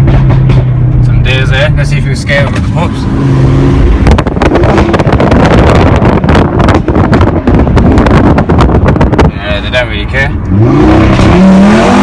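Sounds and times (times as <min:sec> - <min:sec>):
exhaust pops and crackles: 0:00.0 - 0:03.1, 0:03.7 - 0:09.3
car engine running: 0:00.0 - 0:12.0.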